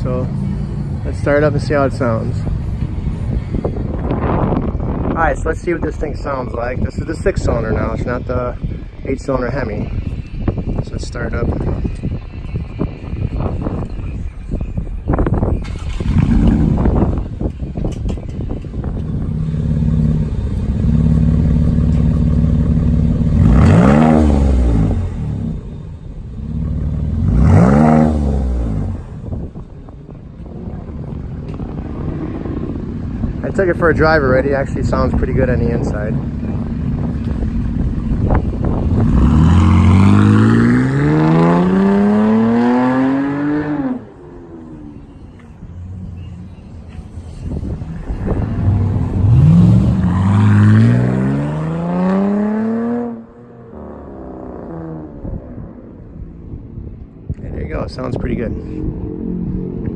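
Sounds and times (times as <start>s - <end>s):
car engine revving: 19.0s - 29.6s, 30.6s - 45.3s, 47.4s - 56.0s.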